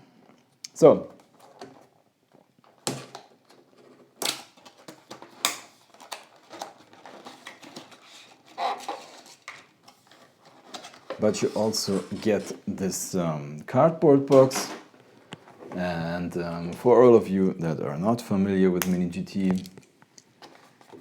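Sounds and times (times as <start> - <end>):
plastic packaging clicking and crackling: 1.2 - 11.3.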